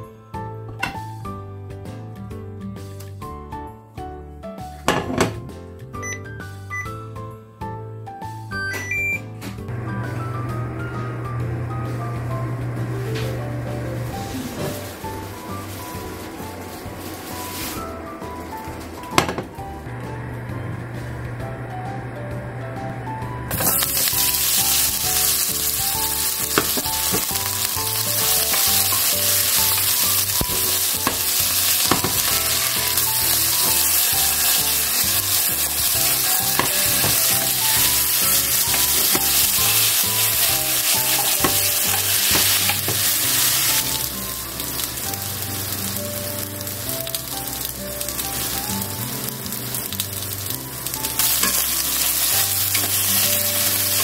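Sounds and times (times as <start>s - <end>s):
potatoes sizzling in hot oil: 23.5s - 54.0s.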